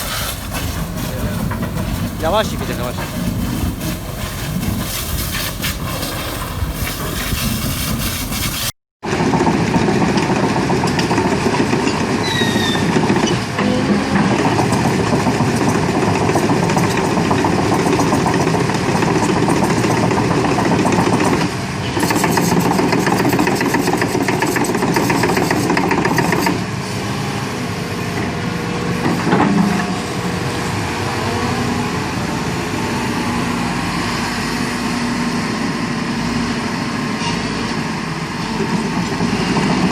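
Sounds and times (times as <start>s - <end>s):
construction machine engine running: 0.0s - 8.3s, 9.1s - 12.2s, 12.8s - 39.9s
dense hiss: 0.0s - 8.7s.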